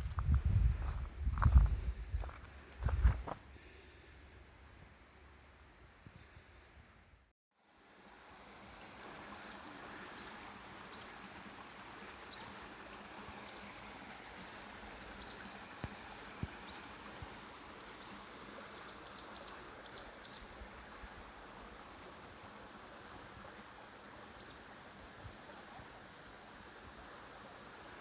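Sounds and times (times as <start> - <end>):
stream water rushing: 7.6 - 28.0.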